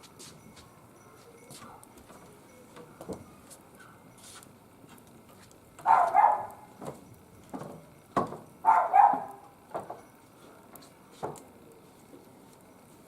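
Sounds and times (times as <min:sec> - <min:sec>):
dog barking: 0:05.8 - 0:06.7, 0:08.6 - 0:09.5.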